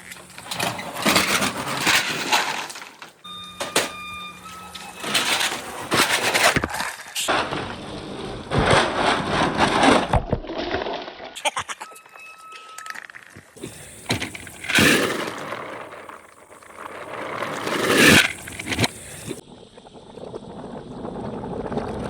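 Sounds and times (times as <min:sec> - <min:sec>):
marbles rolling and clattering: 0:00.0 - 0:03.9, 0:12.5 - 0:19.4
short ringing tone: 0:03.2 - 0:05.4, 0:11.8 - 0:13.4.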